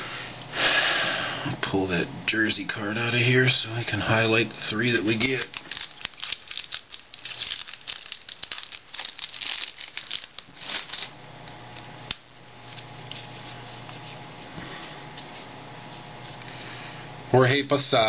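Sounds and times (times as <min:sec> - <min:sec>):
faint steady hum: 0:00.0 - 0:18.0
cards and wrapping rustling: 0:04.6 - 0:11.2, 0:12.5 - 0:16.4.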